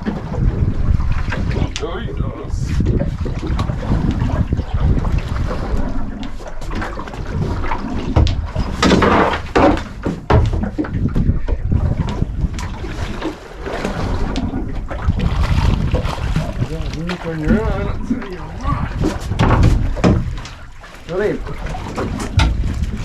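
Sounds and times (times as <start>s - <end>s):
wind buffeting microphone: 0.0s - 23.0s
knocks on boat: 8.1s - 12.6s, 19.0s - 20.6s, 21.7s - 23.0s.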